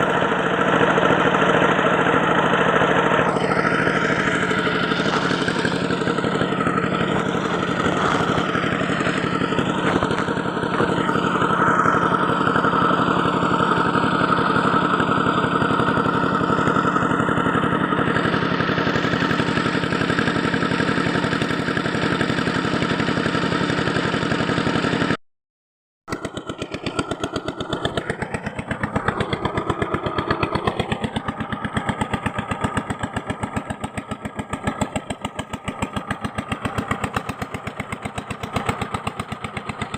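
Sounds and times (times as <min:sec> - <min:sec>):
electric power tool motor running: 0:00.0 - 0:01.2, 0:02.8 - 0:16.5.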